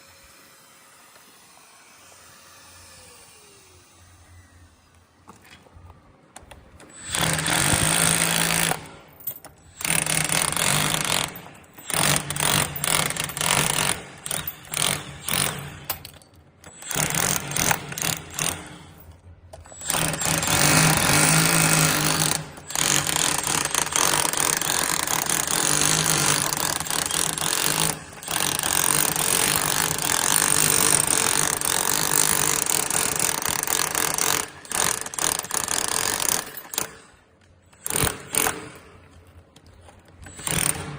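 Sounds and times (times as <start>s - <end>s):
electric chipping hammer chipping tiles: 9.8s - 15.8s, 19.6s - 36.9s.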